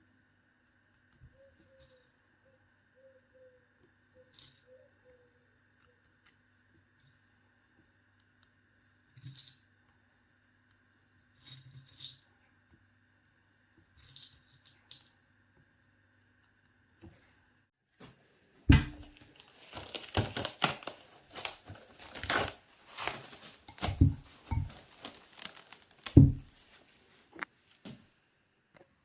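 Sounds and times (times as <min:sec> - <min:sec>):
crinkly material crumpling and tearing: 0:19.0 - 0:27.8
dull thumps: 0:23.7 - 0:24.9, 0:26.0 - 0:26.6.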